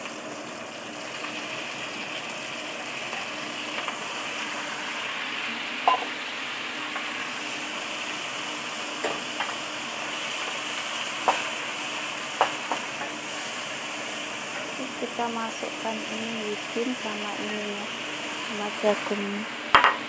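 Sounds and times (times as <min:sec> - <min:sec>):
squid sizzling in hot oil: 0:00.0 - 0:20.0
wooden spatula knocking on pan: 0:05.8 - 0:06.1, 0:19.7 - 0:20.0.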